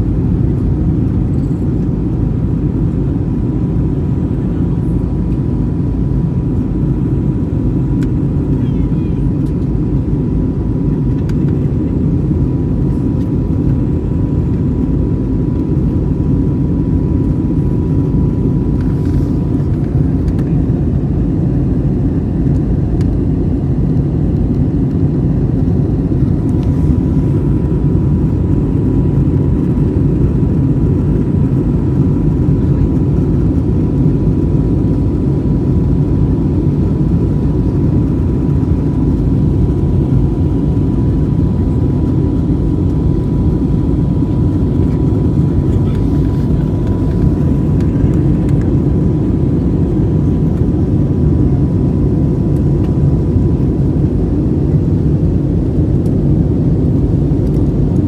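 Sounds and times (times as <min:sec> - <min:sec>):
low drone of engines and airflow: 0:00.0 - 0:58.0.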